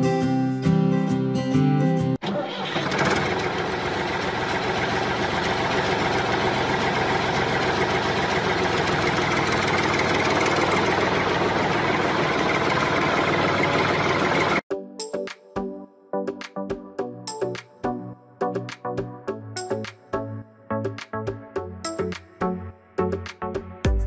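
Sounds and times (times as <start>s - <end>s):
small gasoline engine running: 2.2s - 14.6s.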